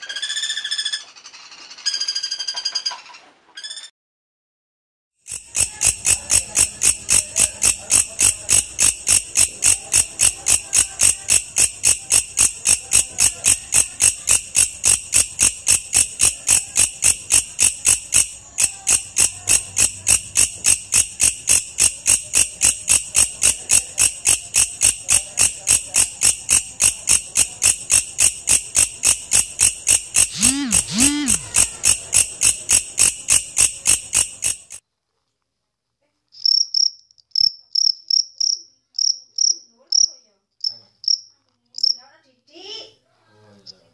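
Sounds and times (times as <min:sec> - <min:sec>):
insect chirping shrilly: 0:05.3 - 0:34.8.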